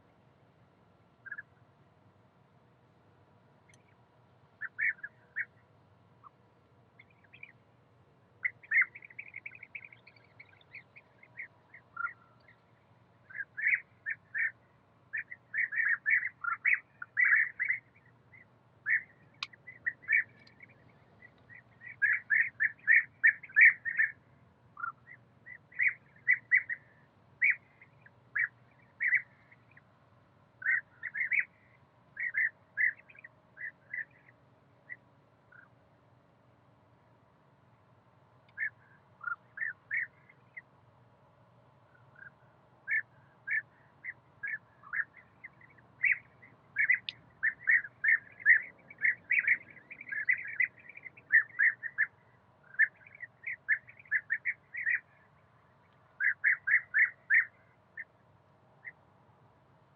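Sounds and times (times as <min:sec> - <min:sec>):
bird chirping: 0:01.2 - 0:01.6, 0:04.6 - 0:06.4, 0:07.0 - 0:07.6, 0:08.4 - 0:24.2, 0:24.8 - 0:29.9, 0:30.6 - 0:35.8, 0:38.5 - 0:40.7, 0:41.9 - 0:58.1, 0:58.8 - 0:59.0.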